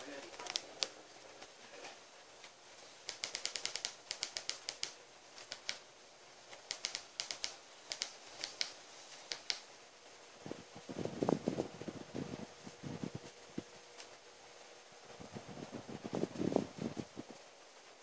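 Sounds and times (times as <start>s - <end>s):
fire crackling and popping: 0.0s - 1.6s, 6.5s - 9.7s.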